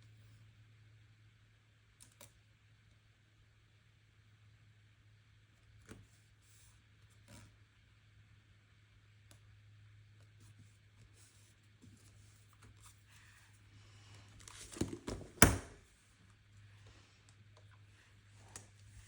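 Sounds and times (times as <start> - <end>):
faint steady hum: 0.0 - 19.0
paper rustling: 14.2 - 15.4.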